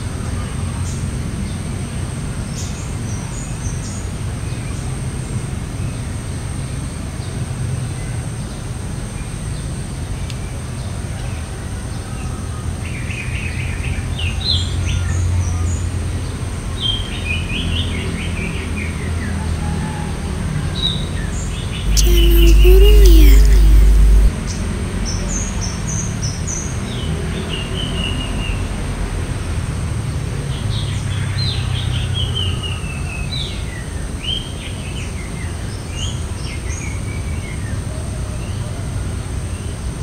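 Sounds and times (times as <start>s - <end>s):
steady low rumble: 21.9s - 24.3s.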